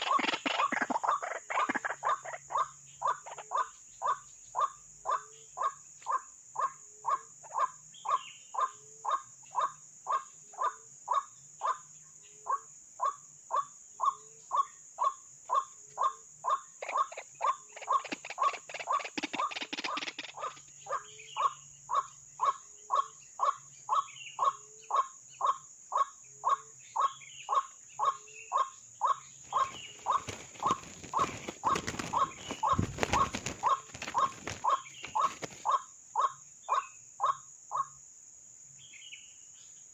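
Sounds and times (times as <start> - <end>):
bird croaking calls: 0.0 - 38.0.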